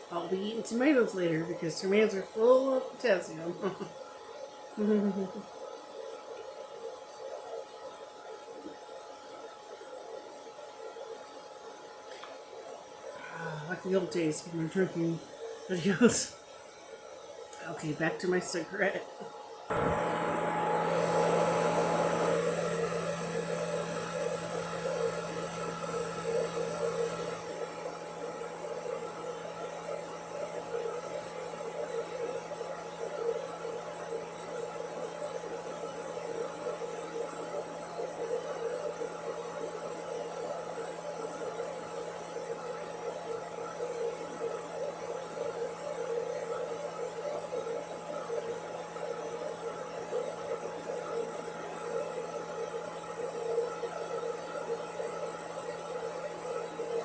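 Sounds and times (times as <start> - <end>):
electrical hum: 17.4 - 57.0.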